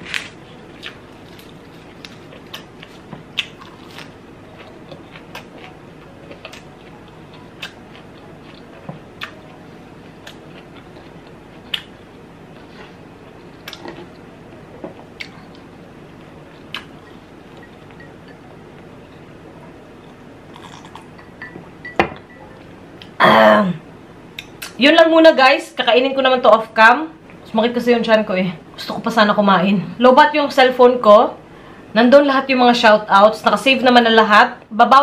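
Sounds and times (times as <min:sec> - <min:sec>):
person chewing: 0:00.0 - 0:14.3, 0:15.1 - 0:18.1, 0:20.0 - 0:21.2.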